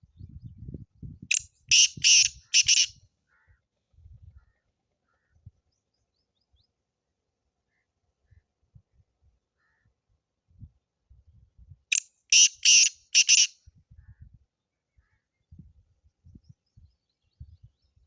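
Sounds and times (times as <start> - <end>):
francolin calling: 1.3 - 3.5, 11.9 - 13.5.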